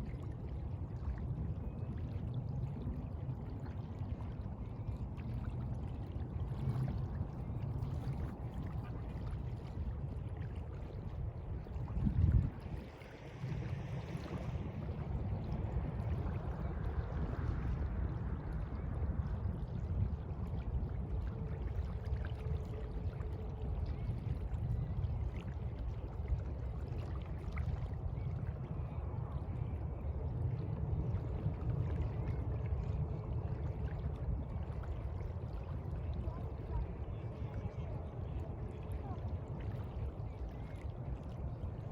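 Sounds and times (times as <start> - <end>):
continuous low rumble: 0.0 - 41.9
sea water sloshing: 5.2 - 30.2.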